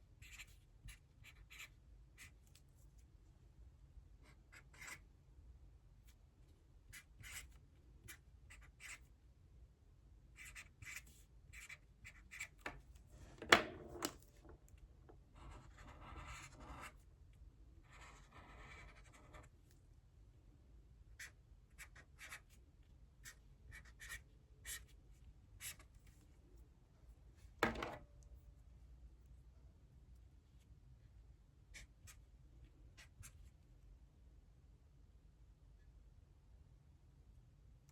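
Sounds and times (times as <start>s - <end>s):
pen writing on paper: 0.2s - 1.7s, 4.5s - 5.0s, 6.9s - 7.5s, 8.5s - 9.0s, 10.4s - 12.6s, 15.4s - 17.0s, 17.9s - 19.5s, 21.2s - 22.4s, 23.2s - 24.9s.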